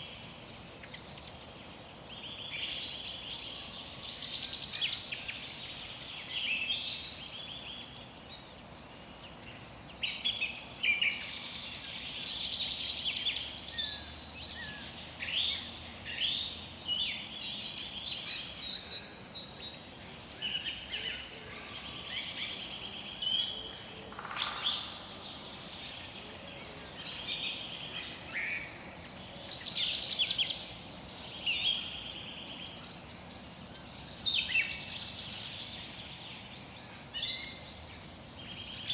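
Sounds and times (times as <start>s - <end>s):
faint steady hiss: 0.0s - 38.9s
songbirds chirping: 0.0s - 38.9s.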